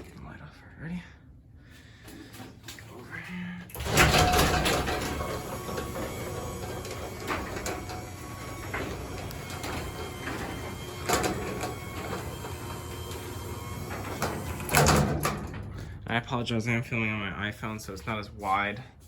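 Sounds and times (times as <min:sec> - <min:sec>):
garage door opener motor hum: 0:03.7 - 0:16.1
garage door rattling: 0:03.7 - 0:16.4.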